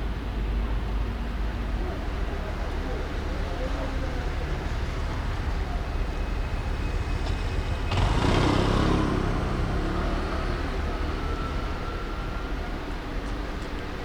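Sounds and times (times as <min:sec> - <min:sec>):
rumble of vehicles and tyres: 0:00.0 - 0:14.0
vehicle passing close by: 0:07.6 - 0:11.8.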